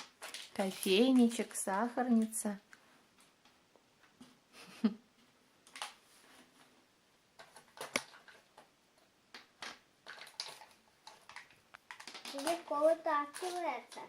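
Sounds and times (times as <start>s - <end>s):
plastic toy dishes clicking: 9.4s - 14.0s.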